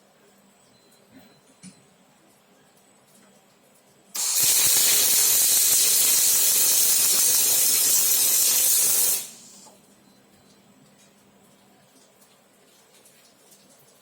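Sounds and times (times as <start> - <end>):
welding arc hissing crackle: 4.2 - 9.7.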